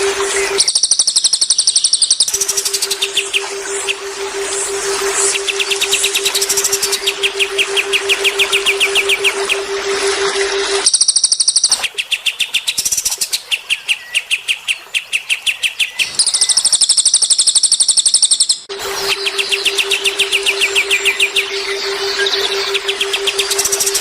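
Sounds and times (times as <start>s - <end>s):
low hum: 0.0s - 10.9s, 18.7s - 24.0s
high rapid bird trilling: 0.0s - 11.9s
bird chirping: 0.0s - 24.0s.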